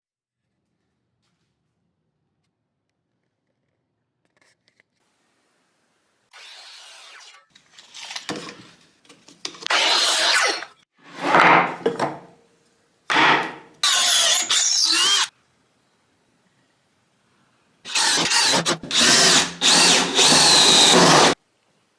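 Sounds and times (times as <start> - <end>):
power tools cutting wood: 6.3 - 8.6, 9.5 - 12.2, 13.1 - 15.3, 17.9 - 21.4.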